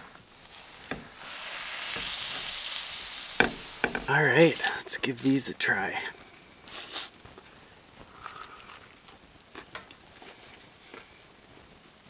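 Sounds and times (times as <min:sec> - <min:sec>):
faint chewing: 0:06.7 - 0:11.3.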